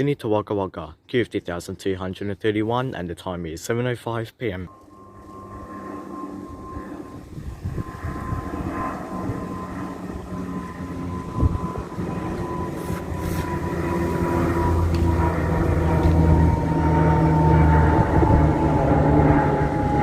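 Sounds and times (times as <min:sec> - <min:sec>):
high engine whine: 0:04.7 - 0:20.0
turboprop engine drone: 0:04.7 - 0:20.0.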